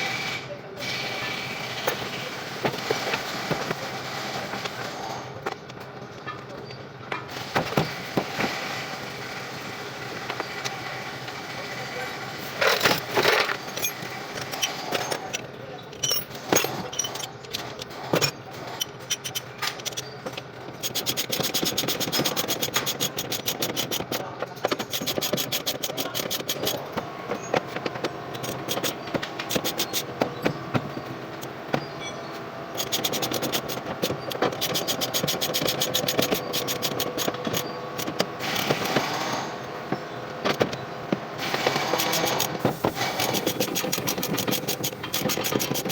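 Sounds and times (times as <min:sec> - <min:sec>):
metal tools clinking and scraping: 0:12.4 - 0:40.8, 0:41.4 - 0:45.9.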